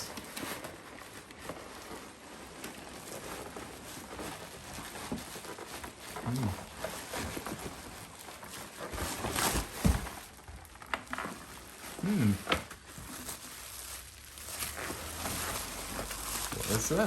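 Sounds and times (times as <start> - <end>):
packing material rustling: 0.0 - 17.0
person grunting: 12.0 - 12.5.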